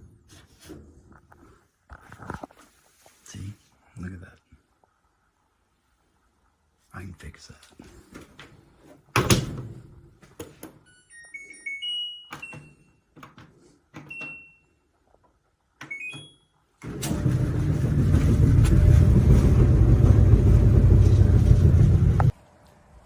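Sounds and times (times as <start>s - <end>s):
dryer control panel beeps: 10.9s - 13.0s, 14.0s - 14.7s, 15.8s - 17.3s
dryer rumbling: 16.8s - 22.3s.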